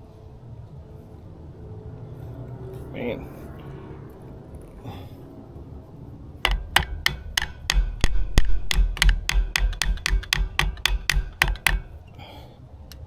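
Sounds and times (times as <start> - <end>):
hand tool tapping on metal: 6.4 - 12.0.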